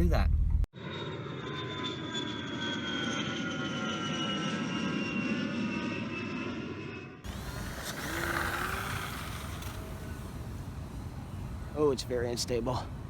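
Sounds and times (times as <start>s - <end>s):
faint rising whine: 0.4s - 12.1s
electric motor whining: 7.2s - 11.3s.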